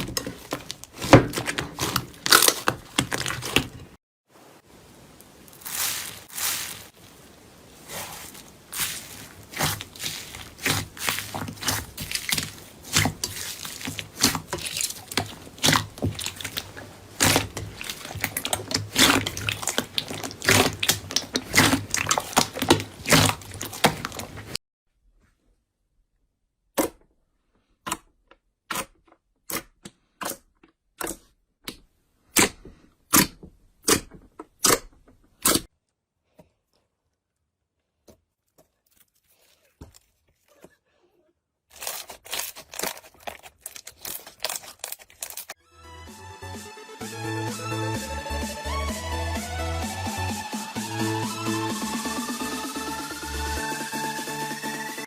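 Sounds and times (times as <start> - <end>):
slime crackling and popping: 0.0 - 3.9, 5.5 - 24.6, 41.7 - 45.6.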